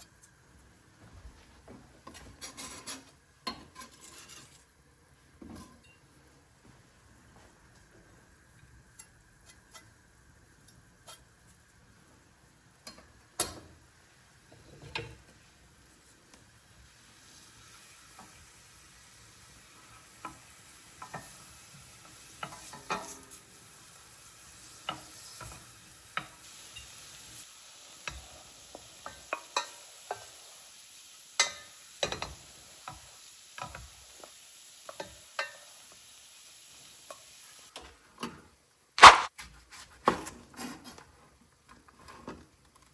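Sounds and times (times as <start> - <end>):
onion sizzling in a pan: 7.0 - 38.0, 39.0 - 39.4.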